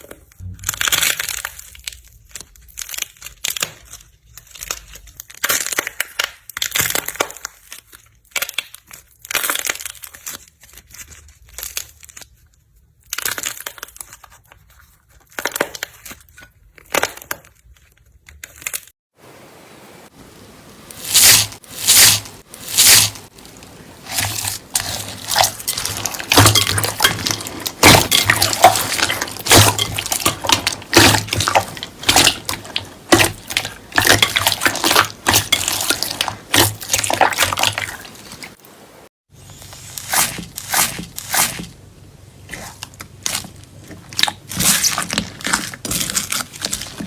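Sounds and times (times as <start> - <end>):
slime being squeezed: 20.9 - 38.4, 39.5 - 41.7.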